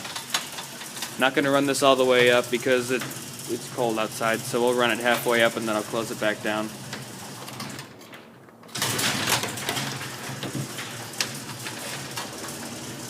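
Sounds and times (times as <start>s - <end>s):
garage door motor humming: 0.0s - 13.0s
garage door clicks: 6.8s - 13.0s.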